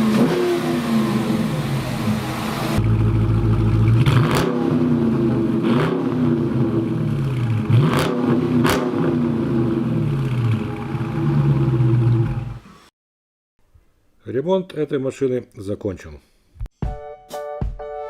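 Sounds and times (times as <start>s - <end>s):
car engine revving: 0.0s - 12.7s.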